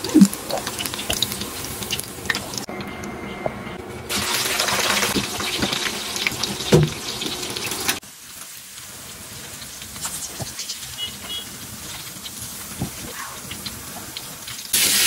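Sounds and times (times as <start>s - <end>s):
chicken sizzling in hot oil: 0.0s - 2.7s, 4.1s - 15.0s.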